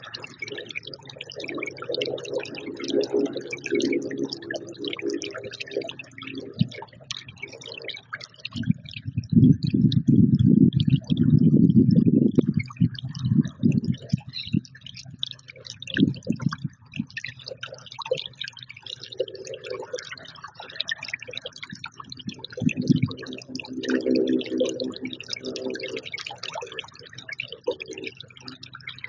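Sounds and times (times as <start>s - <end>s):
low steady-pitched sound: 0.0s - 29.0s.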